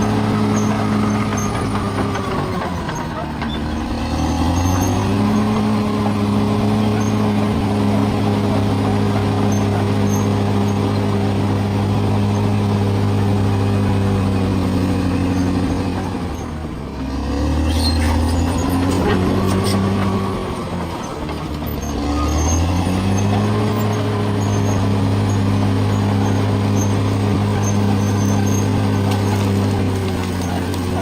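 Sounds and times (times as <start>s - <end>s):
bulldozer diesel engine droning: 0.0s - 31.0s.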